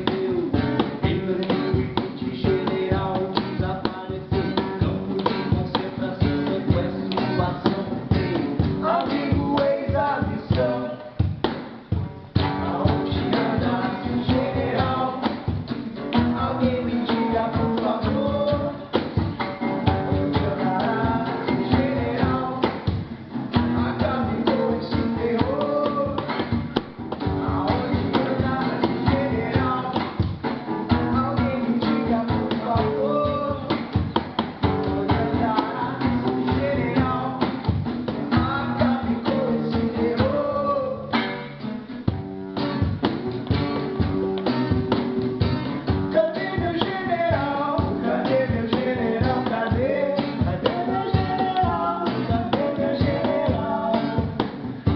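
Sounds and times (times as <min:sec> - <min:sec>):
guitar: 0:00.0 - 0:54.9
person singing: 0:16.1 - 0:19.0, 0:23.8 - 0:26.5, 0:31.1 - 0:33.9, 0:34.8 - 0:37.6, 0:38.3 - 0:41.2, 0:46.1 - 0:54.9.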